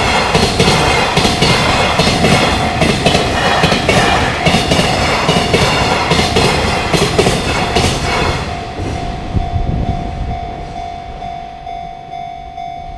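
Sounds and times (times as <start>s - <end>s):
wheels clacking over rail joints: 0.0s - 9.5s
level-crossing warning bell: 0.0s - 12.9s
train rumble: 0.0s - 12.9s.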